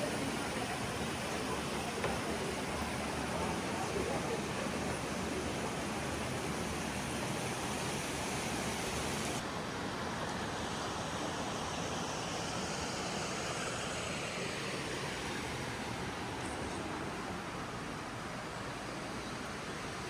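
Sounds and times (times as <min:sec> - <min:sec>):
spring water flowing from basin: 0:00.0 - 0:09.4.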